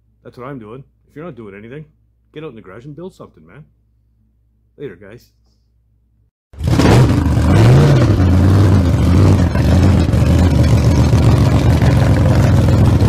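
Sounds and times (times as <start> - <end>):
vehicle engine revving: 6.6 - 13.0.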